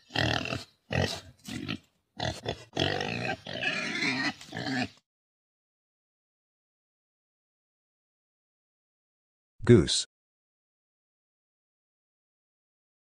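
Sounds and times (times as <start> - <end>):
pig grunting: 0.0 - 5.0.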